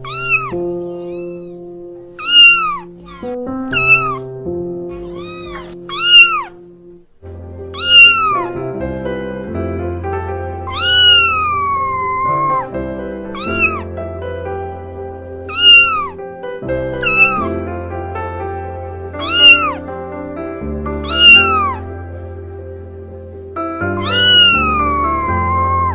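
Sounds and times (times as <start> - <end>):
kitten meowing: 0.0 - 4.3, 4.9 - 6.6, 7.7 - 8.6, 10.6 - 12.7, 13.3 - 13.9, 15.4 - 16.2, 17.0 - 17.6, 19.2 - 19.9, 21.0 - 21.9, 23.9 - 25.9
background music: 0.0 - 25.9.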